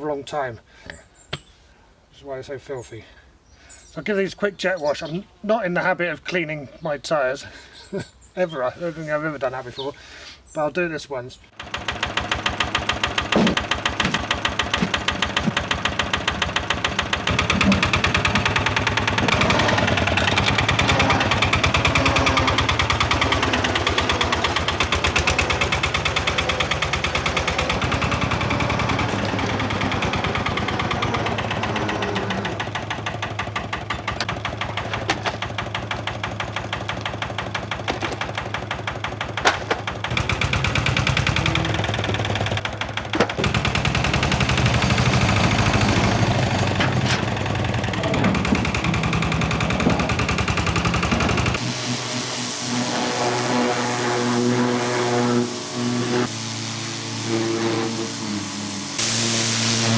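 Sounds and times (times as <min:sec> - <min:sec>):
pressure washer pump pulsing: 0:11.5 - 0:59.9
water jet hissing on tyres: 0:13.9 - 0:31.6, 0:40.3 - 0:42.4, 0:49.5 - 0:59.9.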